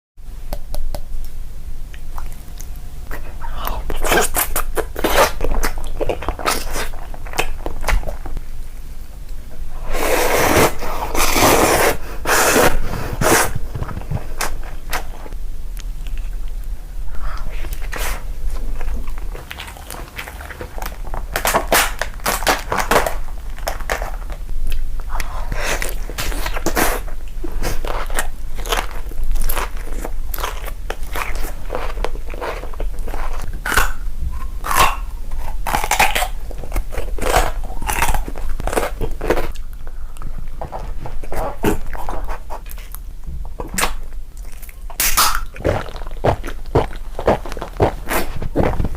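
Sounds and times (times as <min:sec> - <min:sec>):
crunchy food being bitten: 0:01.9 - 0:08.4, 0:17.3 - 0:39.8, 0:40.5 - 0:48.9
wet chewing: 0:12.5 - 0:48.9.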